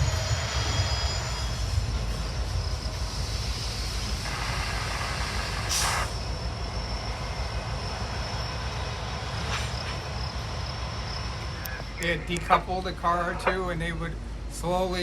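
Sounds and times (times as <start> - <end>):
train rumbling by: 0.0 - 15.0
sharp hiss: 3.0 - 6.2.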